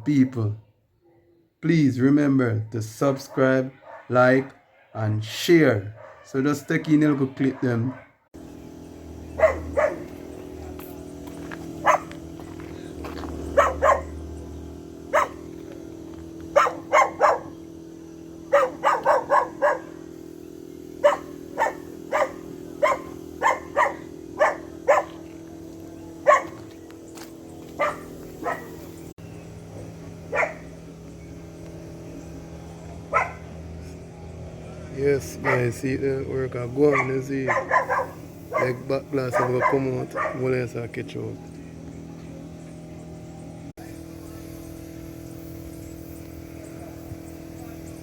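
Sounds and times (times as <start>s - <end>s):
dog barking: 3.1s - 5.1s, 5.9s - 6.4s, 7.4s - 8.2s, 9.4s - 10.2s, 11.8s - 12.2s, 13.5s - 14.2s, 15.1s - 15.5s, 16.5s - 17.6s, 18.5s - 20.1s, 21.0s - 25.2s, 26.2s - 26.7s, 27.8s - 28.9s, 30.3s - 30.7s, 33.1s - 33.5s, 35.4s - 35.8s, 36.9s - 40.5s
steady low hum: 8.4s - 48.0s.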